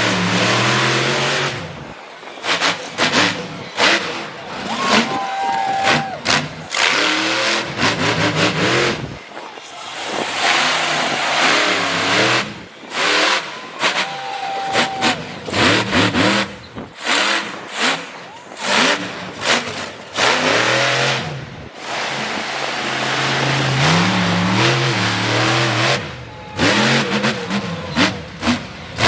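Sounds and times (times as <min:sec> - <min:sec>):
truck engine revving hard: 0:00.0 - 0:29.0.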